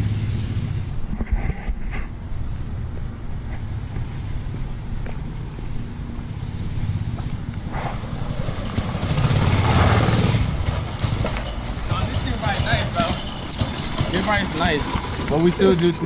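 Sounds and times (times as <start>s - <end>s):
small single-cylinder engine running: 8.4s - 16.0s.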